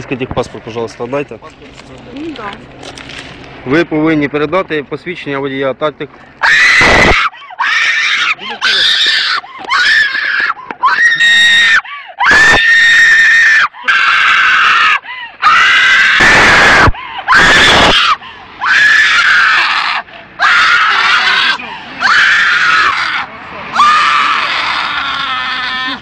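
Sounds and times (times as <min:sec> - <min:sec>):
woman screaming: 0:06.4 - 0:26.0.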